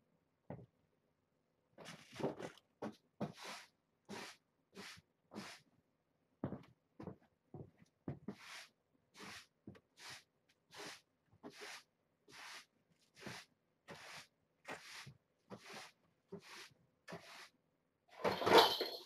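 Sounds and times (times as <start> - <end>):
broom sweeping a floor: 3.2 - 5.7, 8.2 - 17.6.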